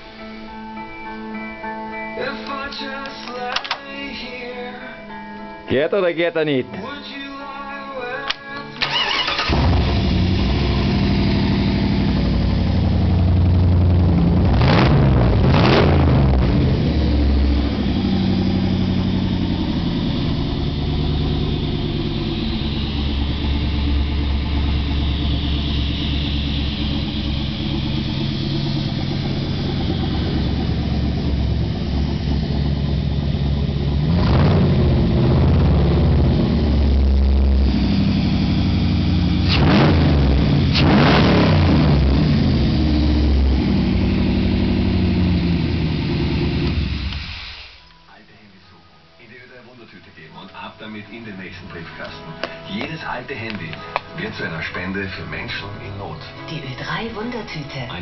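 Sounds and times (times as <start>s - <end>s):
car engine starting and idling: 8.2s - 48.0s, 50.0s - 58.0s
engine throttle blips: 8.8s - 47.8s.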